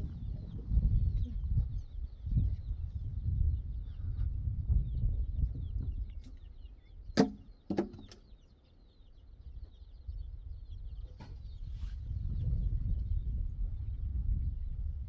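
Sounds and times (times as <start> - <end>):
small birds chirping: 0.0 - 14.8
sharp knocks: 7.2 - 8.2.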